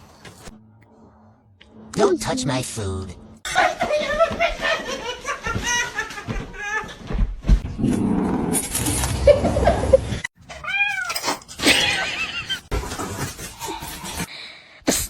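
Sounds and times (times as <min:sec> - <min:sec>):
clattering and rustling: 0:10.4 - 0:13.6
cat meowing: 0:10.5 - 0:12.6.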